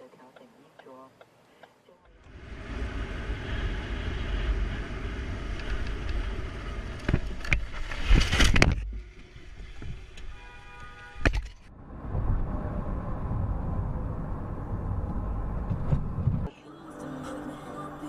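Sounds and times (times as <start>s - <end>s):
car road and engine rumble: 2.0s - 18.0s.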